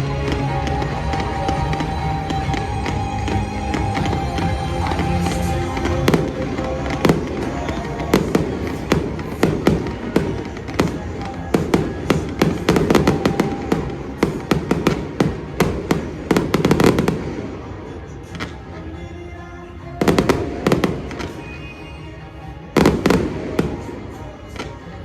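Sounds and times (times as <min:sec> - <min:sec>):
fireworks bangs and crackles: 0:00.0 - 0:25.0
music playing: 0:00.0 - 0:25.0.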